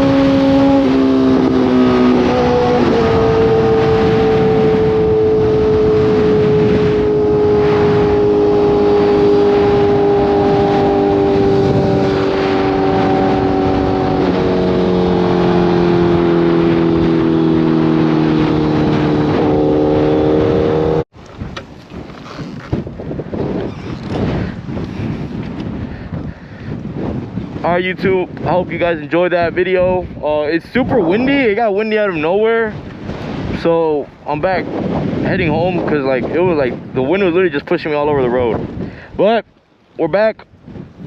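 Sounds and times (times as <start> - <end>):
motorcycle engine at speed: 0.0 - 21.7
wind noise: 0.0 - 41.0.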